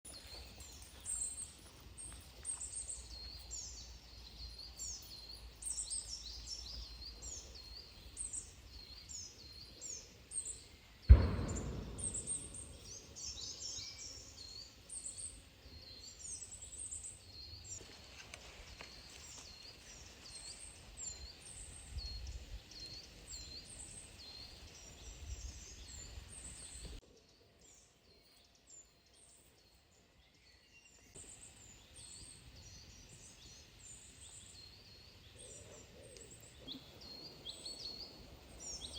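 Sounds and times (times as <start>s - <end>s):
small birds chirping: 0.0s - 38.9s
low rumble: 11.1s - 13.0s
loud thump: 11.1s - 13.2s.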